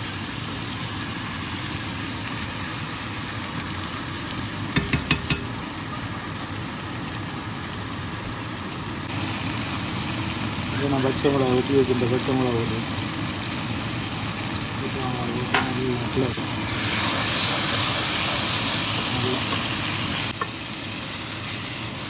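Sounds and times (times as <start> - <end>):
vegetables sizzling in hot oil: 0.0 - 22.0
spoon clicking against pan: 4.8 - 5.6.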